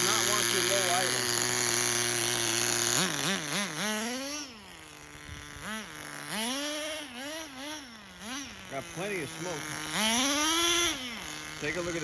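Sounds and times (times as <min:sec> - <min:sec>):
rc car engine revving: 0:00.0 - 0:12.0.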